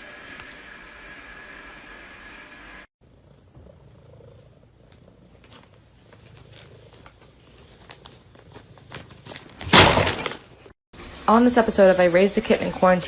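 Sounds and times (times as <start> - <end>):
faint clicks and rustles: 4.4 - 9.7.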